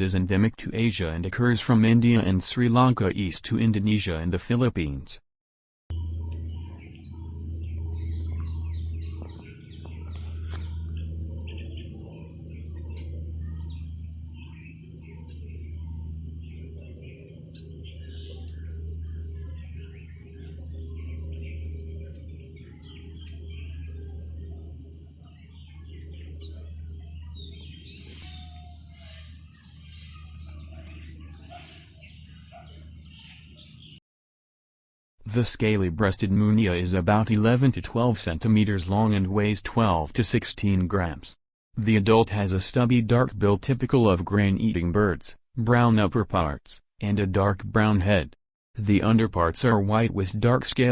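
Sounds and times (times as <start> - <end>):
low rumble: 5.9 - 28.2
high insect trill: 5.9 - 34.0
small birds chirping: 5.9 - 34.0.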